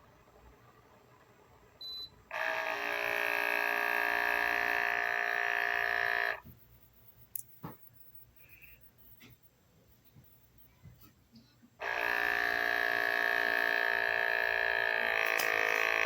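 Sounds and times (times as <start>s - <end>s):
espresso machine pump buzzing: 2.3s - 6.5s, 11.8s - 16.0s
sharp click: 7.3s - 7.6s.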